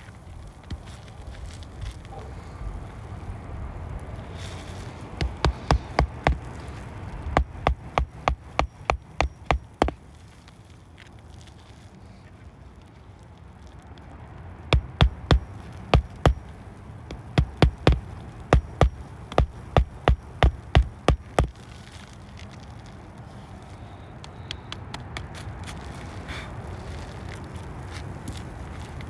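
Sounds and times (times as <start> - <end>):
hammer striking nails: 5.2 - 10.0, 14.8 - 21.6.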